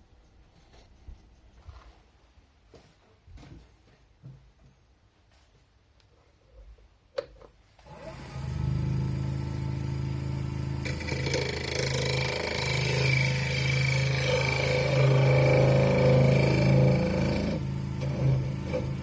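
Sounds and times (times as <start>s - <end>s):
lathe motor humming: 7.9s - 19.0s.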